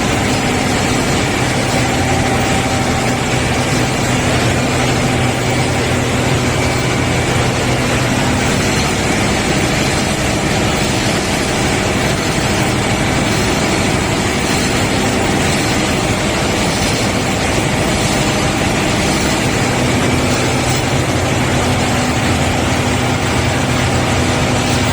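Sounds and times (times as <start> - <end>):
engine droning: 0.0 - 24.9.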